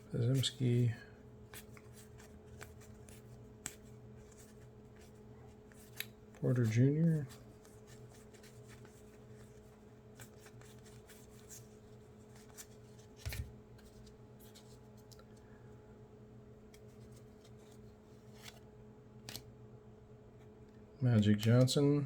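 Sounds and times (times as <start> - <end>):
cards flipped and slid by hand: 1.5 - 15.4, 16.6 - 19.5.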